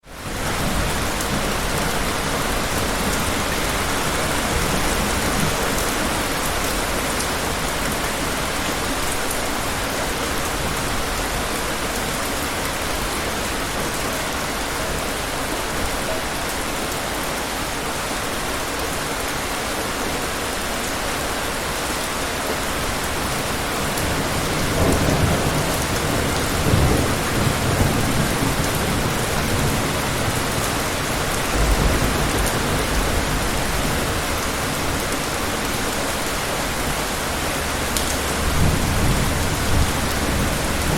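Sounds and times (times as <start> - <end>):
heavy rain falling: 0.0 - 40.9
distant thunder rumbling: 24.0 - 35.1, 37.6 - 40.9.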